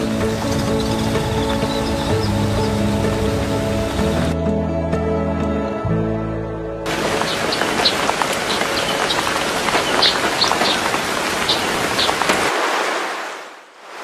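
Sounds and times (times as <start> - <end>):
steady hiss of rain: 6.9 - 14.0.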